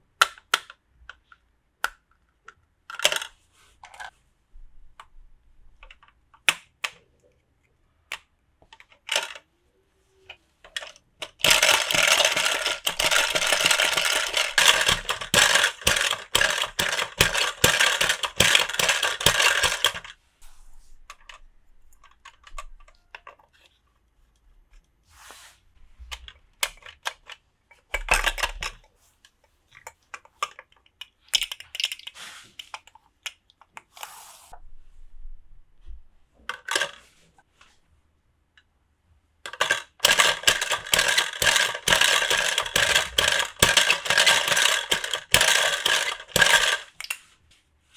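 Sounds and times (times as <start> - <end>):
plastic pieces clicking: 0.2 - 3.3, 8.1 - 9.4, 10.6 - 20.1, 26.1 - 28.9, 29.8 - 33.9, 36.5 - 37.0, 39.5 - 47.2.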